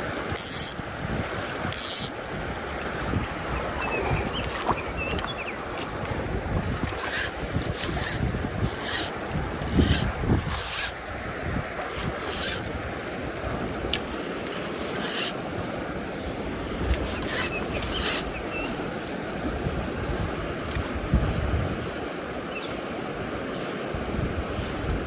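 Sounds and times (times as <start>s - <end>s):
stream running: 0.0s - 22.1s.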